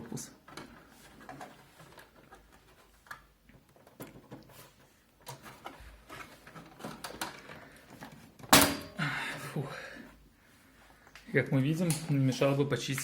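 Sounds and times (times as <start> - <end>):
plastic clicks creaks and scrapes: 0.5 - 8.4.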